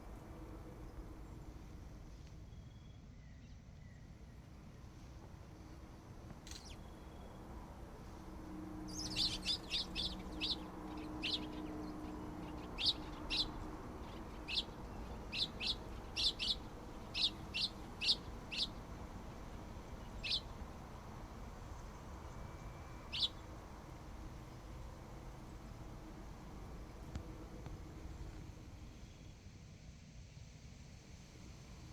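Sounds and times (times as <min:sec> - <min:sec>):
bird chirping: 0:06.5 - 0:07.4, 0:08.8 - 0:20.6, 0:21.8 - 0:23.5.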